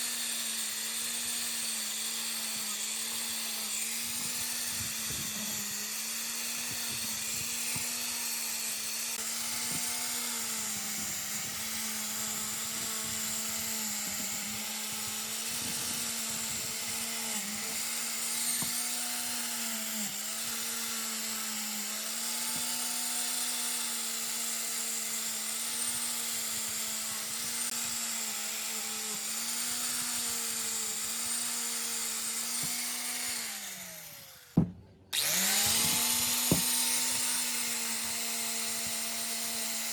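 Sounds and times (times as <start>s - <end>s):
power tool motor running: 0.0s - 39.9s.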